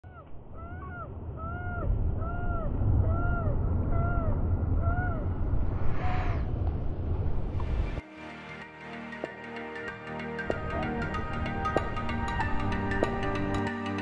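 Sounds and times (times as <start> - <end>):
bird calling: 0.0 - 6.4.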